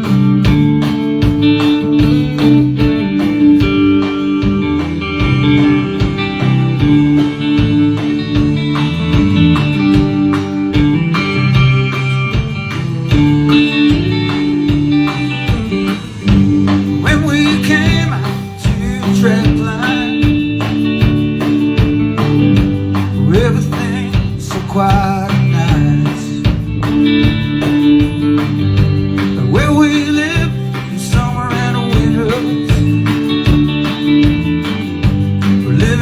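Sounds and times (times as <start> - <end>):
live band playing: 0.0 - 36.0.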